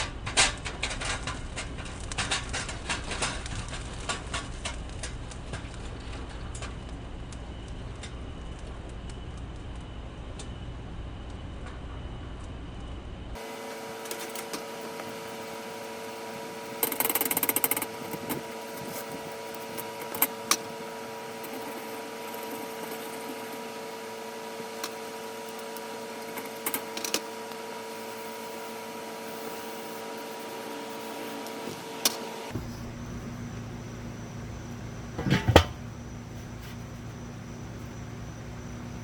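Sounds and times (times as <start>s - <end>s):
steady mechanical hum: 0.0s - 39.0s
loud clatter: 35.2s - 35.8s
sharp clicks and knocks: 35.2s - 35.8s.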